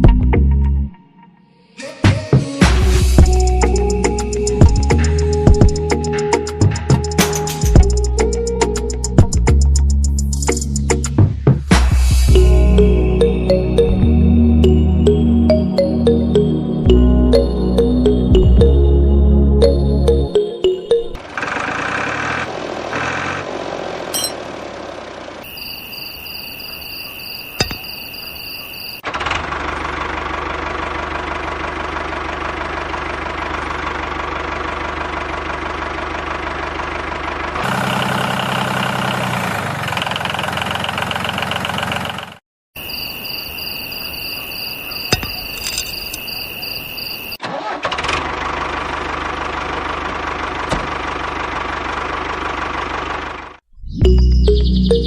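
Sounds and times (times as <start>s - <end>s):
engine running with low hum: 2.6s - 11.0s, 21.1s - 25.6s, 29.0s - 42.4s, 47.5s - 53.6s.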